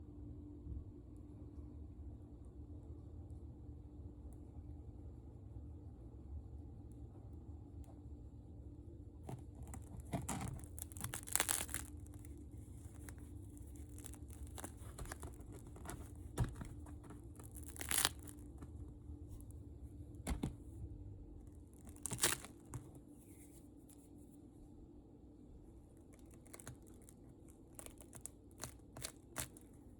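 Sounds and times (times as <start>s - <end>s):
bread crust crackling and crunching: 9.1s - 24.4s, 25.8s - 29.9s.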